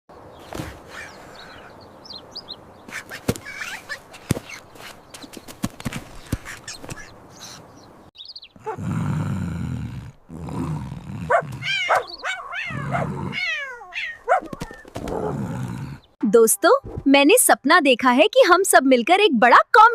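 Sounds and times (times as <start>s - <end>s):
high falling squeaky calls: 0.9s - 5.0s, 11.6s - 14.9s
loud low roar: 8.6s - 11.8s.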